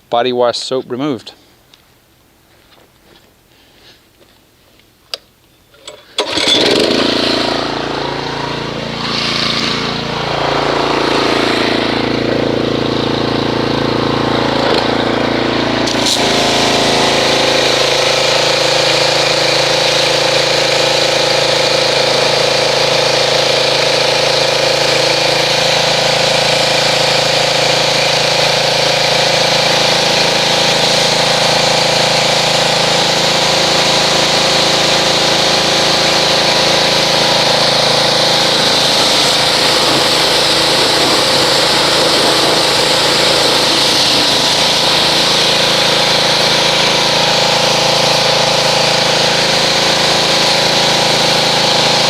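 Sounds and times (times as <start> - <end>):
pressure washer motor humming: 5.8 - 52.0
water spray hissing: 14.9 - 52.0.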